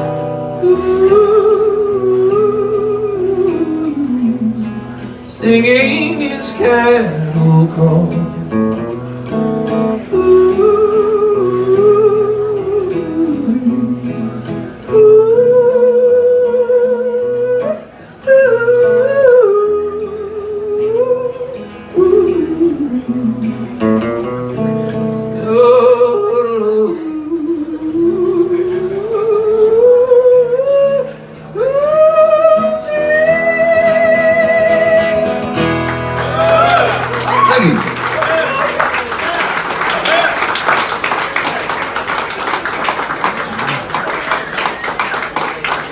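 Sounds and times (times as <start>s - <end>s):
acoustic guitar: 0.0s - 45.9s
man yodel-like singing: 5.3s - 8.4s, 25.3s - 35.6s, 36.3s - 38.7s.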